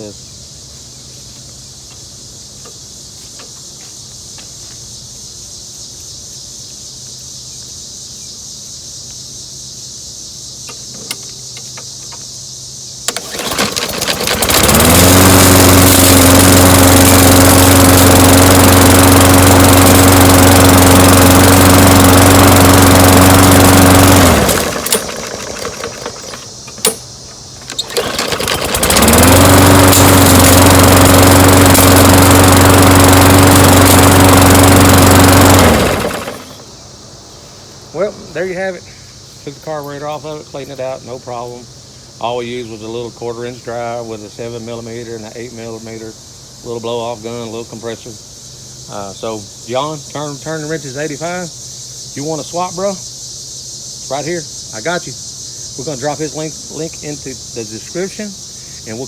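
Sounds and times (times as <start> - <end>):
pull-start cord: 10.7 - 12.2, 13.1 - 36.7
lawnmower engine running: 10.7 - 12.3, 13.0 - 37.1.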